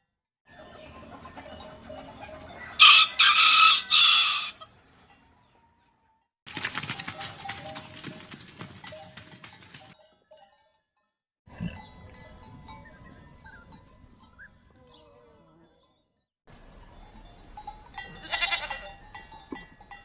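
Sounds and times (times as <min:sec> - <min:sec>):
bells clanking: 0:00.5 - 0:03.3, 0:07.4 - 0:20.0
livestock calls: 0:18.0 - 0:18.9.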